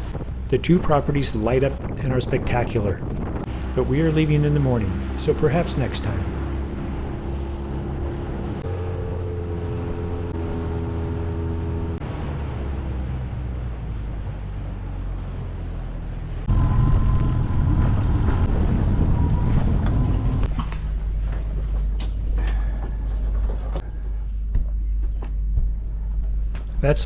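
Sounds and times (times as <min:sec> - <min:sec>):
water noise: 0:00.0 - 0:22.3
outboard motor running: 0:00.0 - 0:23.8
wind: 0:00.0 - 0:27.0.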